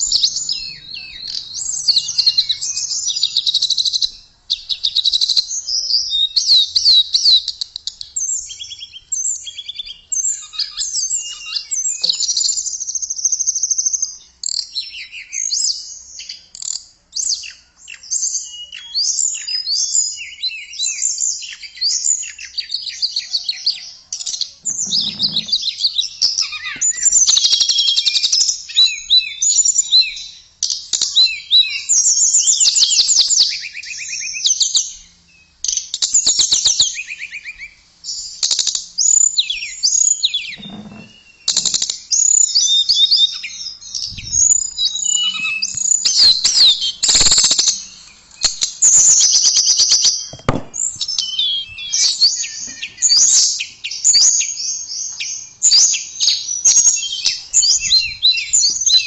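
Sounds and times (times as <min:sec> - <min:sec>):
bird chirping and trilling: 0:00.0 - 0:12.8, 0:24.7 - 0:28.0, 0:39.4 - 0:59.0.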